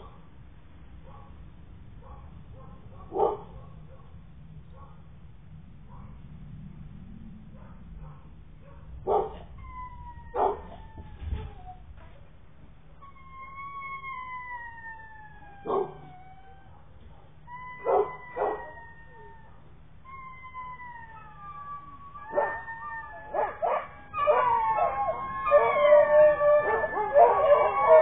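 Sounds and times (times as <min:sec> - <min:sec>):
puppies yipping: 0:08.0 - 0:11.0, 0:15.5 - 0:19.5, 0:20.1 - 0:28.0
puppies whining: 0:09.3 - 0:12.2, 0:13.0 - 0:28.0.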